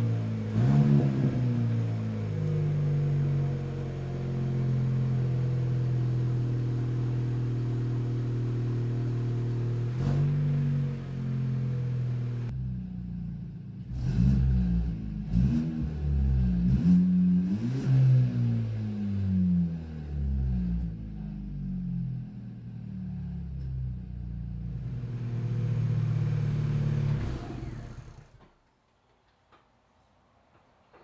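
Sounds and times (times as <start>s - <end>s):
car engine revving: 0.0s - 12.5s, 13.8s - 21.2s, 24.7s - 28.4s.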